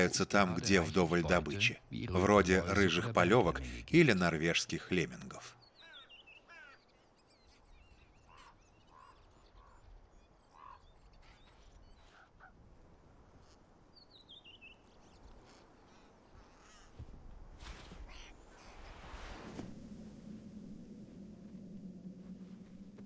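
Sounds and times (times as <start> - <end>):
falling bird chatter: 0.0 - 12.5
harsh bird calls: 0.0 - 12.6.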